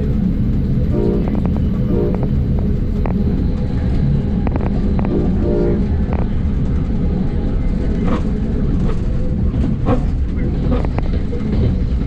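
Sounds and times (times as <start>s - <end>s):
train low rumble: 0.0s - 12.0s
wheels clicking over track: 0.0s - 12.0s.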